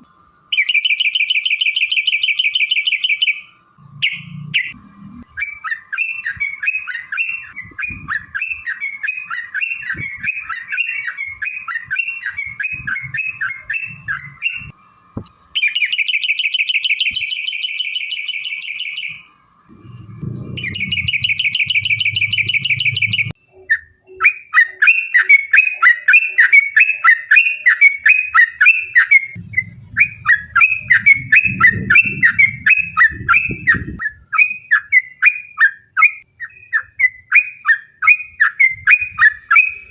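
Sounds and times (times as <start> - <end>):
rapid rattling bird trill: 0.5 - 39.9
low rumble: 19.7 - 23.4, 29.4 - 34.0.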